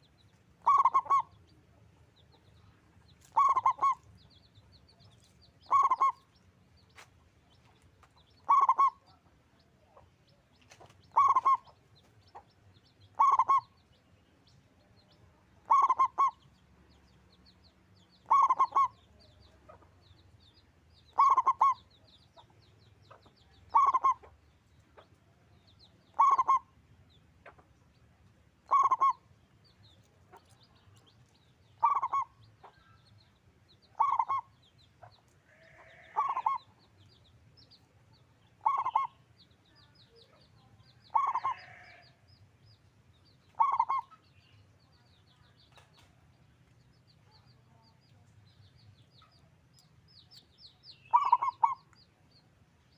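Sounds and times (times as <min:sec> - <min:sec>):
dove cooing: 0:00.6 - 0:01.3, 0:03.3 - 0:04.0, 0:05.7 - 0:06.2, 0:08.4 - 0:09.0, 0:11.1 - 0:11.6, 0:13.2 - 0:13.7, 0:15.7 - 0:16.4, 0:18.2 - 0:18.9, 0:21.1 - 0:21.8, 0:23.7 - 0:24.2, 0:26.1 - 0:26.7, 0:28.7 - 0:29.2, 0:31.8 - 0:32.3, 0:34.0 - 0:34.5, 0:35.9 - 0:36.6, 0:38.6 - 0:39.1, 0:41.1 - 0:41.9, 0:43.6 - 0:44.1, 0:51.1 - 0:51.8.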